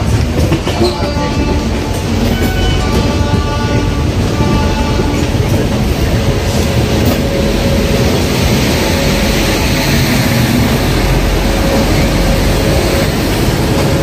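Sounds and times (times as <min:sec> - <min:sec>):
train rumble on board: 0:00.0 - 0:14.0
train horn: 0:00.7 - 0:05.6.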